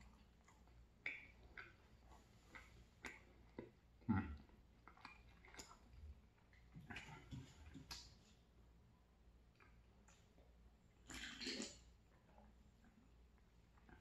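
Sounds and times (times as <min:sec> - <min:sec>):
person chewing with mouth clicks: 0:00.0 - 0:06.0.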